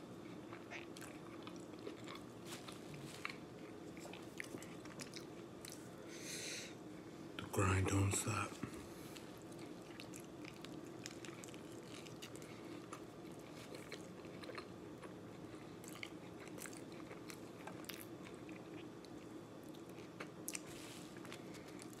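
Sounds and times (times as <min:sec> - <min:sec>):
biting into a burrito: 0:09.2 - 0:18.9.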